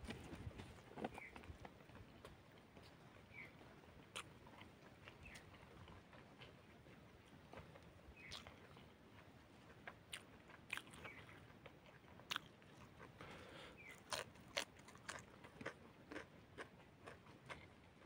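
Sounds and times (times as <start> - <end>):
wet chewing clicks and smacks: 4.1 - 18.0.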